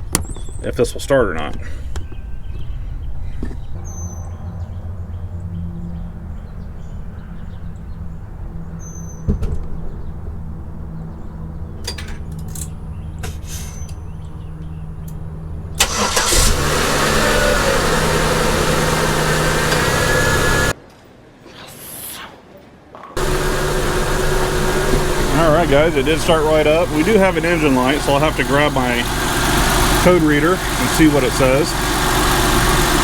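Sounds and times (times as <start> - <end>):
car engine running: 9.8 - 20.7, 23.2 - 33.0
loud engine with rising whine: 12.4 - 20.8, 23.2 - 33.0.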